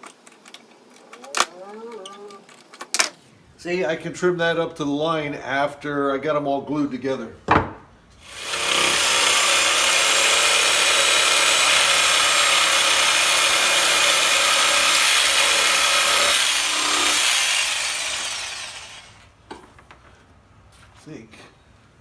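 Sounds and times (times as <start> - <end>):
electric power tool whining: 8.2 - 19.3.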